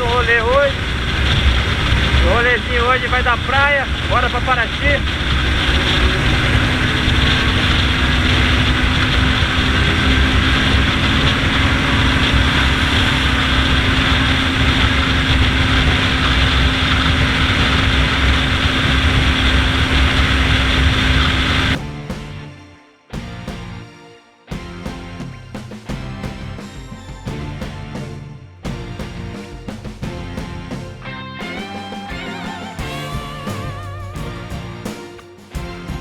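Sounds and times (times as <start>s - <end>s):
motorcycle engine running: 5.0s - 22.2s.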